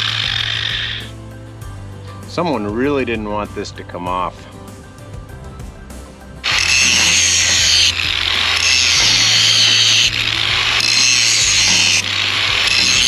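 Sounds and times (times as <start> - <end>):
grinder cutting steel: 0.0 - 1.1, 6.4 - 13.0.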